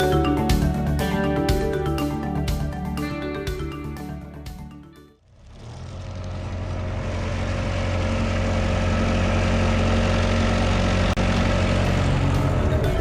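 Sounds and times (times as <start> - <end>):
diesel engine running: 5.2 - 13.0.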